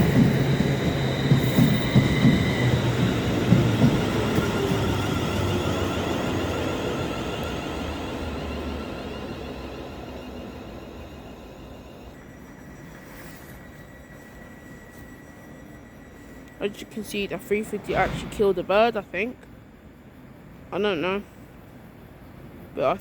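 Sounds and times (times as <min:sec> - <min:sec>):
train wheels clacking over rail joints: 0:00.0 - 0:06.7
high train whine: 0:00.0 - 0:23.0.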